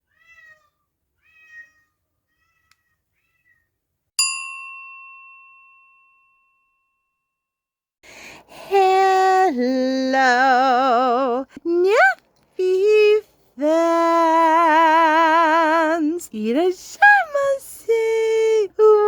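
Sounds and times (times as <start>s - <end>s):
cat meowing: 0.0s - 3.7s
bell-like chime: 4.2s - 7.6s.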